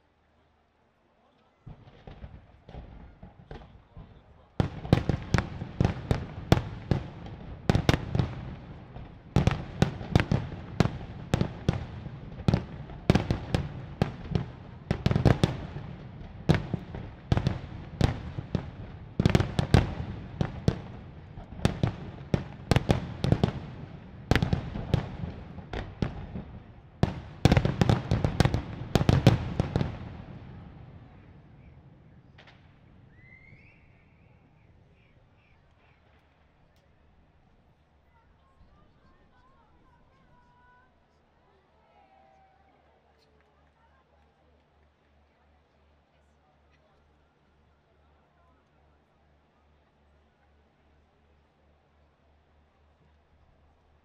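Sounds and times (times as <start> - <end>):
fireworks bursting: 1.7 - 36.4.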